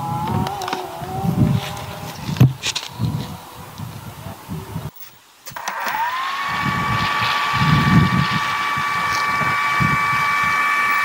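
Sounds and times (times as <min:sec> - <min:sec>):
rc helicopter motor whine: 0:05.5 - 0:11.0.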